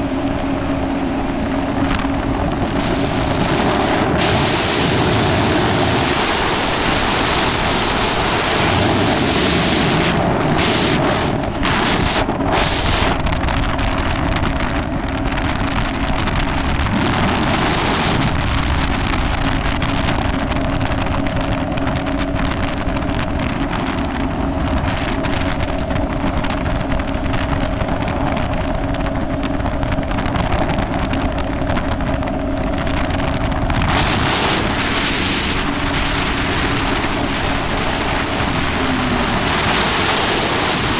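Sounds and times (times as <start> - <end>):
jet ski engine running: 0.0 - 40.9
wind buffeting microphone: 0.0 - 40.9
rushing hiss bursts: 17.2 - 18.3.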